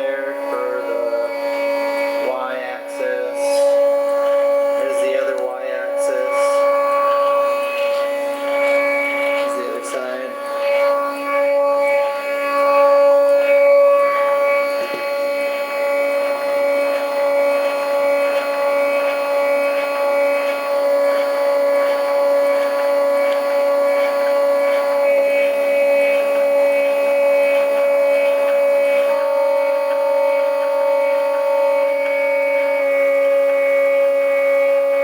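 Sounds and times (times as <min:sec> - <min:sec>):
stepper motors whining: 0:00.0 - 0:35.0.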